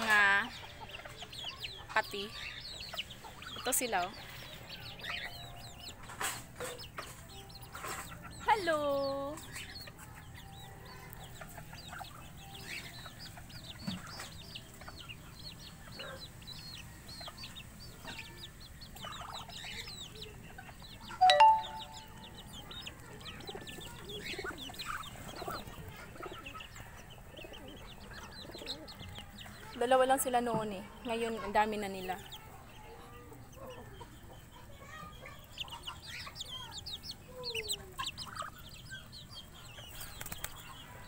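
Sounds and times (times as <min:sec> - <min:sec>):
birds chirping: 0:00.0 - 0:41.0.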